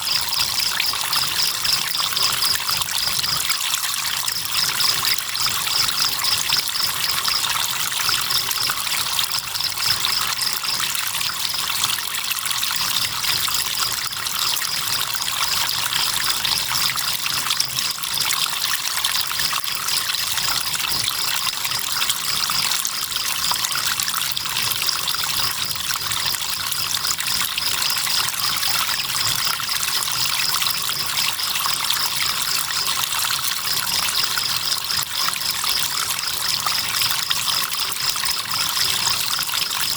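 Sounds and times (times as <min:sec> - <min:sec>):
crickets chirping: 0:00.0 - 0:03.7, 0:04.3 - 0:11.4, 0:24.7 - 0:39.9
river water trickling: 0:00.0 - 0:39.9.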